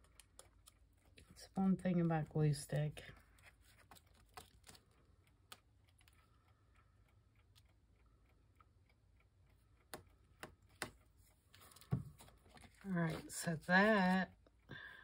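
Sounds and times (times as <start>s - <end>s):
paper and glue stick taps: 9.9s - 11.0s.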